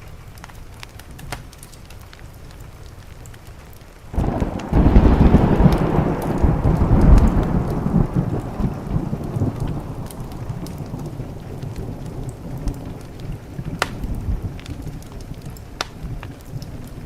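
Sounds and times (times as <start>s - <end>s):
rain on a window: 0.0s - 17.0s
thunder rumbling: 4.1s - 17.0s.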